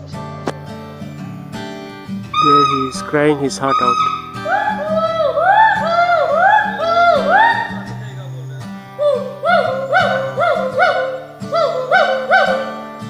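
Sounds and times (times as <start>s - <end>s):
gibbon whooping: 2.3s - 8.0s, 9.0s - 13.0s.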